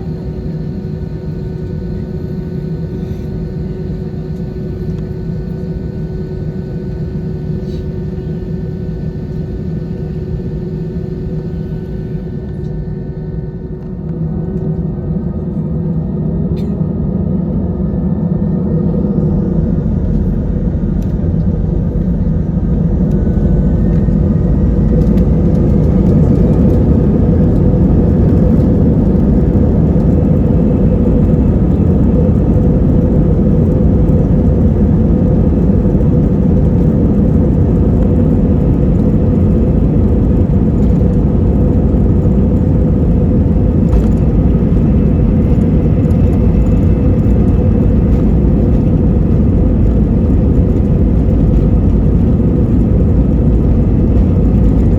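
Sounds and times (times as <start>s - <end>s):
airplane cabin engine rumble: 0.0s - 54.9s.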